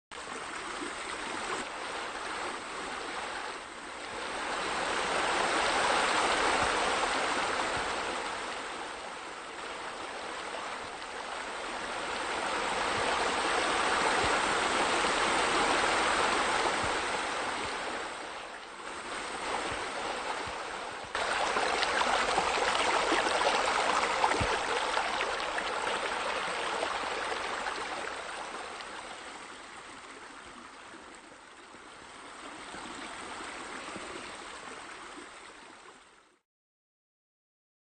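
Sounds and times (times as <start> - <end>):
water pouring into pool: 21.2 - 28.9.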